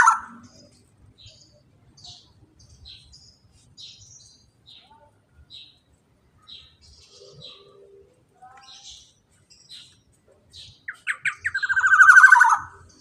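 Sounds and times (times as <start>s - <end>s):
bird fast rolling trill: 10.9s - 12.9s.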